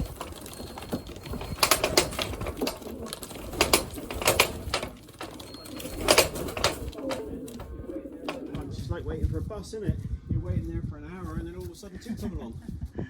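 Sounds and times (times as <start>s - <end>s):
pigeon wings flapping: 0.0s - 8.8s.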